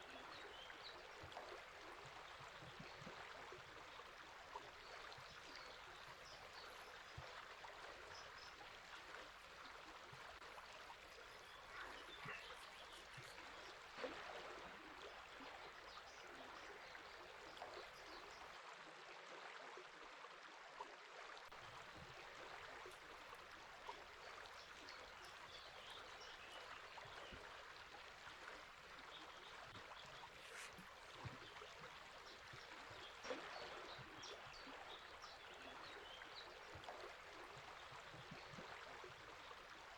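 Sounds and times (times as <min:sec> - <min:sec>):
water splashes: 0:00.0 - 0:18.5, 0:21.5 - 0:39.9
river water running: 0:00.0 - 0:39.9.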